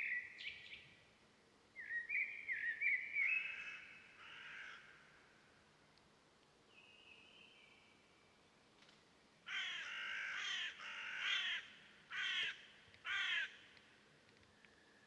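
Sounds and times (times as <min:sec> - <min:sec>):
crow cawing harshly: 0:03.5 - 0:05.0, 0:09.5 - 0:13.6.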